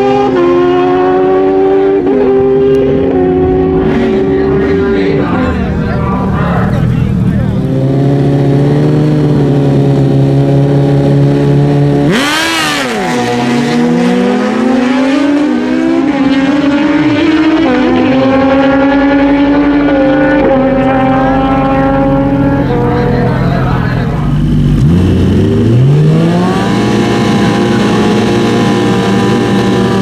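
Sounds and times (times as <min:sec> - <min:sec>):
drag racing motorcycle engines revving: 0:00.0 - 0:30.0.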